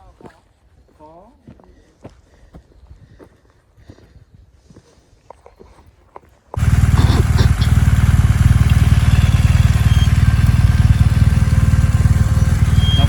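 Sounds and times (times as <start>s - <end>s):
motorcycle engine running: 6.6s - 13.0s.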